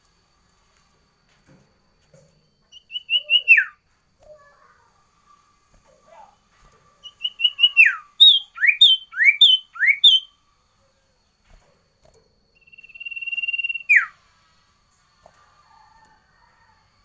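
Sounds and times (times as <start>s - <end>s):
songbird singing whistled notes: 2.4s - 3.8s, 7.0s - 11.4s, 12.5s - 14.3s.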